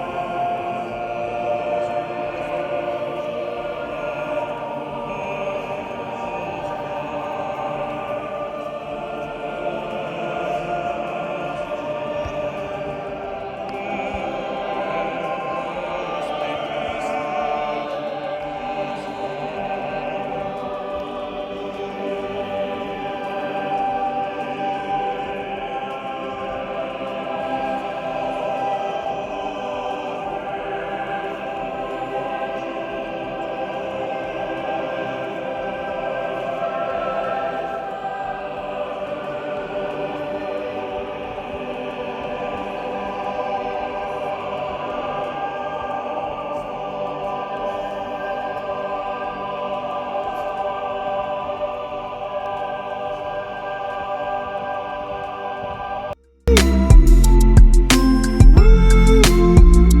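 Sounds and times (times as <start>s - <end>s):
choir-like voices: 0.0s - 60.0s
slow sustained chords music: 55.0s - 60.0s.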